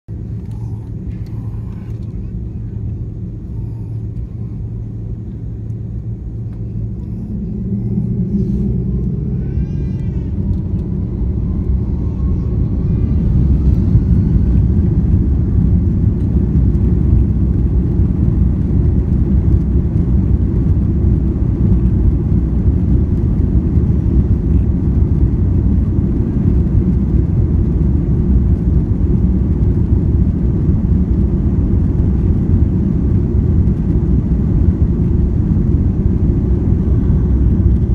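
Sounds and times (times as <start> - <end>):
jet engines spooling up: 0.1 - 20.8
wheels rumbling on runway: 0.1 - 37.9.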